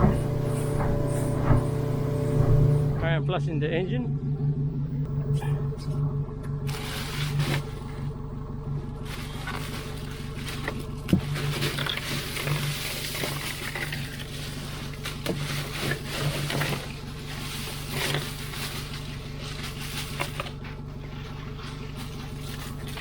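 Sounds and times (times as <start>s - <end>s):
boat engine idling: 0.0s - 23.0s
water splashing and gushing: 8.9s - 23.0s.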